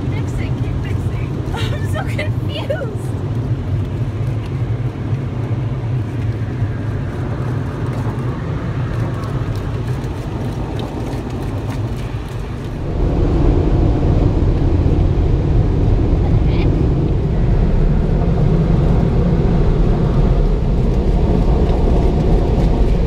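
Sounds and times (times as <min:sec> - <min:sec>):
car wash rushing and rumbling: 0:00.0 - 0:23.0.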